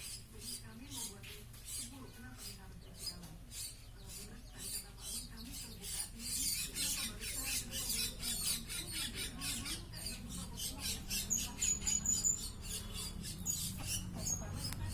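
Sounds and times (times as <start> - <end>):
parrot squawking: 3.5 - 14.9.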